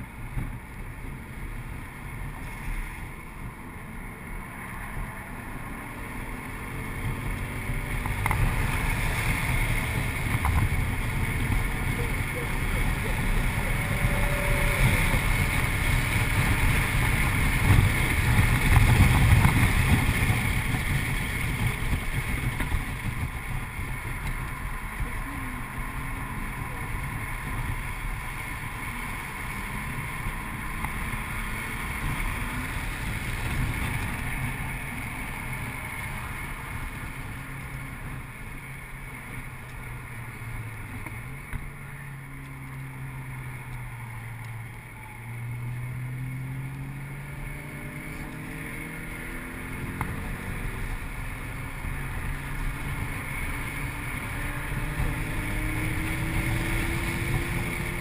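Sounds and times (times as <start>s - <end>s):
car engine running hard: 0.0s - 58.0s
wind and road noise: 0.0s - 58.0s.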